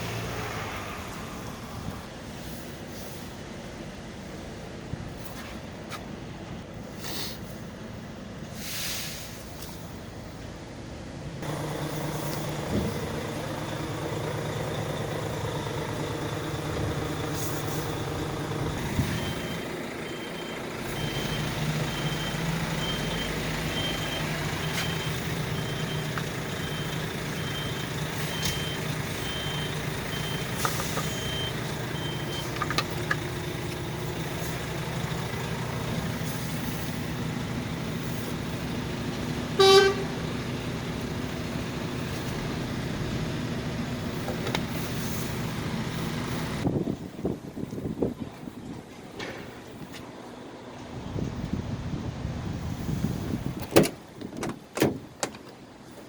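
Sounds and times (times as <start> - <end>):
diesel truck engine running: 9.9 - 56.0
reversing alarm beeping: 11.5 - 32.6
loud pitched horn blast: 39.6 - 40.3.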